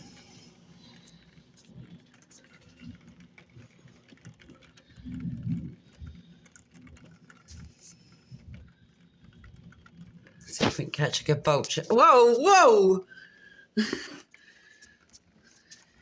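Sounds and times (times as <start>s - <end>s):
rain pattering: 0.0s - 16.0s
low thunder rumble: 4.3s - 6.2s.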